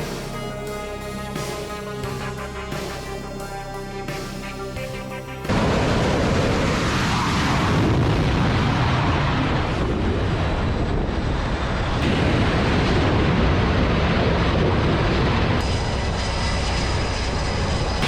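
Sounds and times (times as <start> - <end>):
music: 0.0 - 5.8
jet engines roaring: 0.0 - 18.0.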